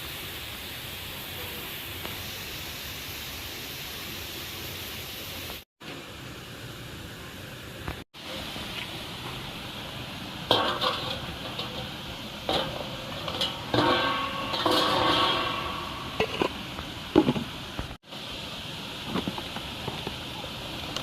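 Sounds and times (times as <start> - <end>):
metal utensils clattering on pot: 10.5 - 17.5.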